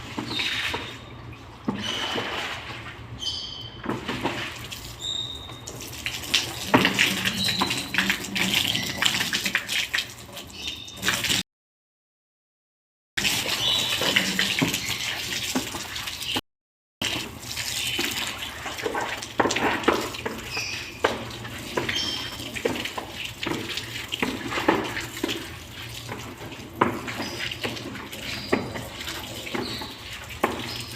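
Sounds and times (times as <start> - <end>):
water running and splashing: 4.0 - 11.4, 13.2 - 16.4, 17.0 - 30.9
cleaning knocks and scrapes: 6.4 - 9.5, 17.9 - 30.9.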